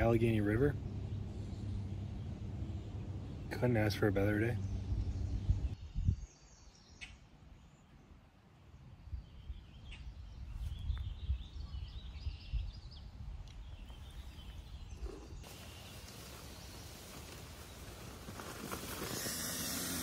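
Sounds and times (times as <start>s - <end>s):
wind rumble on microphone: 4.6s - 6.5s, 9.0s - 15.9s
even rushing hiss: 15.4s - 20.0s.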